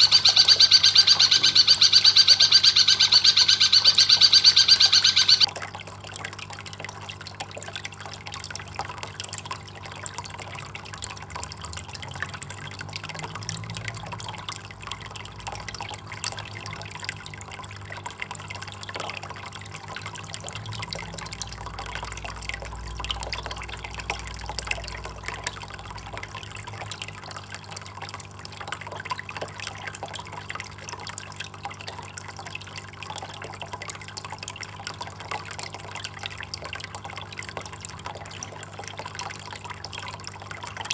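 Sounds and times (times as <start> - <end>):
faint low hum: 0.0 - 5.5
small water drips: 0.0 - 40.9
water trickling and splashing: 0.0 - 40.9.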